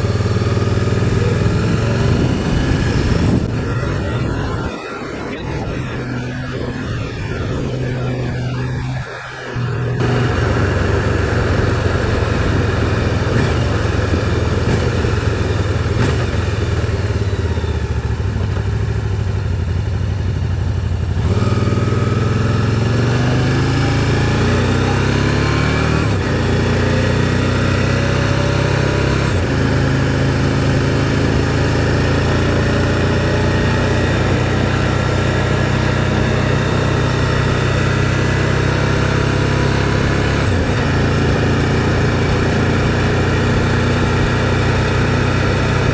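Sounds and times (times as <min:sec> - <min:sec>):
motorcycle engine: 0:00.0 - 0:45.9
wind noise: 0:00.5 - 0:15.2.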